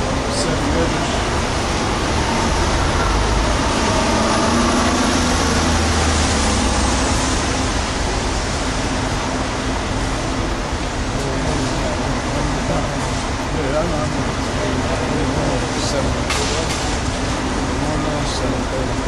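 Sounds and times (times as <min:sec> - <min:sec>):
vehicle passing: 0:00.0 - 0:09.0
road traffic rumble and hiss: 0:00.0 - 0:19.0.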